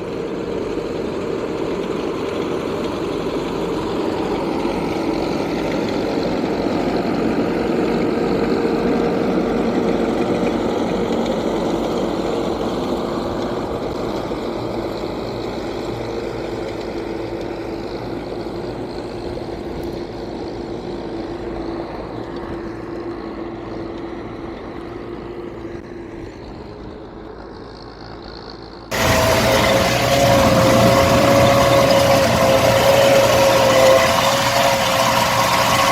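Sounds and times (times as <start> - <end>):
tractor diesel engine running: 27.4 - 35.9.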